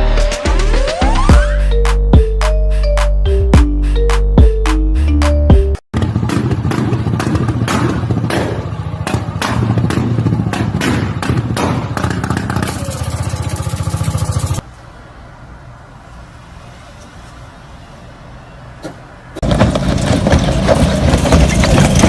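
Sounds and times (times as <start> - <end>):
vehicle engine running hard: 5.9 - 14.6, 19.4 - 22.0
thuds clattering and scraping: 19.4 - 22.0.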